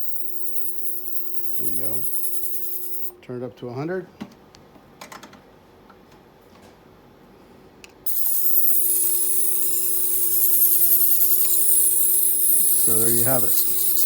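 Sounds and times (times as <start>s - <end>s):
high-pitched device hiss: 0.0s - 3.1s, 8.1s - 14.0s.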